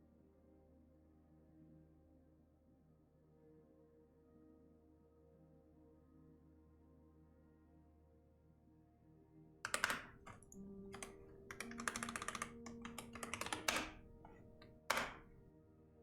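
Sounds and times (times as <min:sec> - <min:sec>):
typing on computer keyboard: 0:09.7 - 0:15.5.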